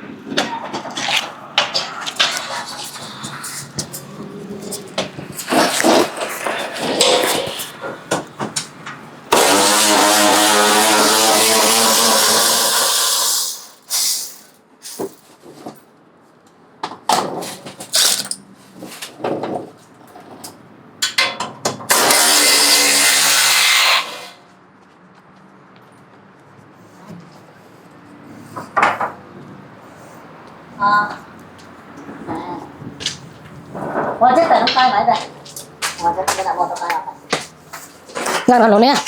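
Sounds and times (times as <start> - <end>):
power tool running: 9.3 - 13.8, 21.9 - 24.4
knocks and clatter: 32.1 - 39.0.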